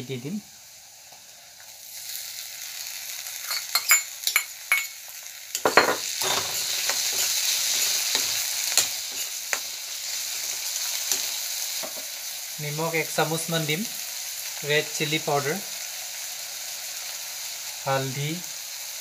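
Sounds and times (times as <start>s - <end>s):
tomatoes frying in hot oil: 0.0s - 19.0s
metal ladle scraping pan: 5.6s - 9.4s.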